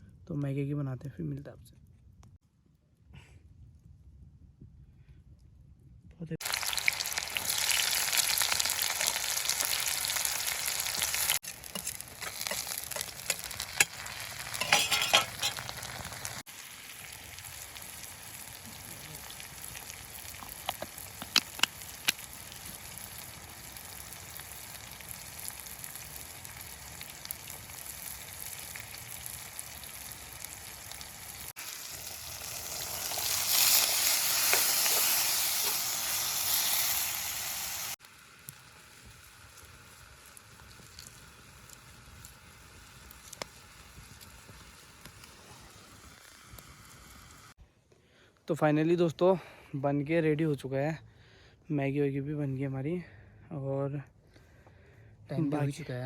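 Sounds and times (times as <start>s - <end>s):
food sizzling in a pan: 6.4s - 47.6s
stirring in a pan: 10.4s - 16.4s, 31.7s - 37.4s.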